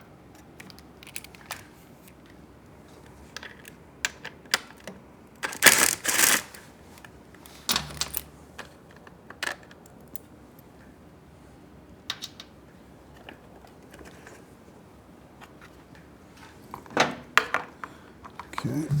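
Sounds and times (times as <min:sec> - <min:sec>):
metal parts clicking and clinking: 0:05.4 - 0:06.6, 0:07.7 - 0:08.3.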